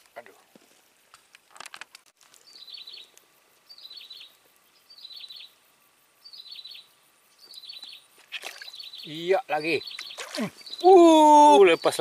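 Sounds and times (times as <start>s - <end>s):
bird calling high phrase: 8.8s - 12.0s.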